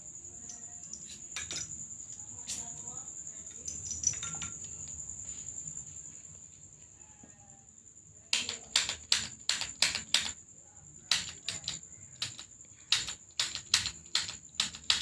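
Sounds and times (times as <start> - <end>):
sharp clicks of cupping equipment: 11.1 - 15.0.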